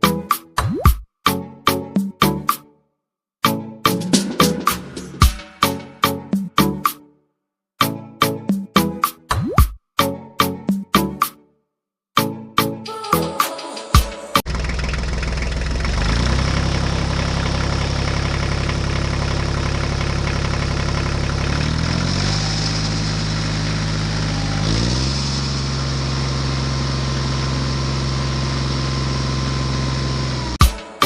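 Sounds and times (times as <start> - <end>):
tractor engine running: 14.4 - 30.6.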